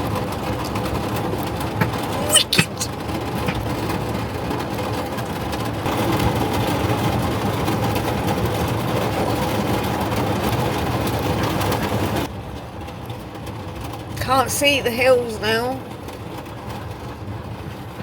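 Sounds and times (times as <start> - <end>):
rain roaring: 0.0 - 14.2.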